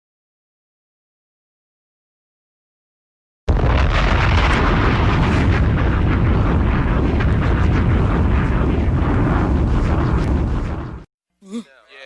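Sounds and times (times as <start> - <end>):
rumbling crackling noise: 3.5 - 11.1.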